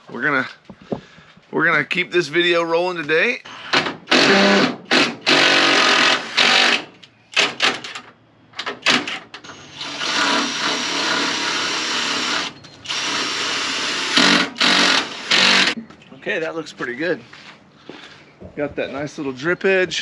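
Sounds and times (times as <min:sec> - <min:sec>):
power drill driving screws: 0:04.1 - 0:07.5, 0:08.8 - 0:15.8.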